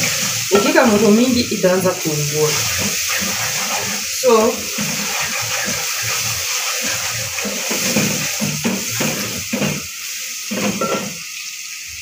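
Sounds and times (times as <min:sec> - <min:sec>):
onions sizzling in pot: 0:00.0 - 0:12.0
wooden spoon scraping pot: 0:02.4 - 0:09.9.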